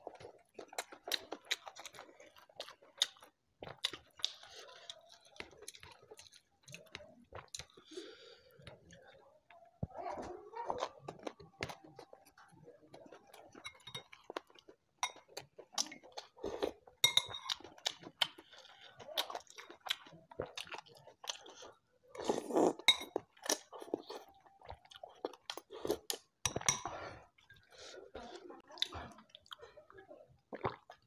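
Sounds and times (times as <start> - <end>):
close-up chewing: 0.0 - 31.0
metal spoon clinking on bowl: 17.0 - 17.6.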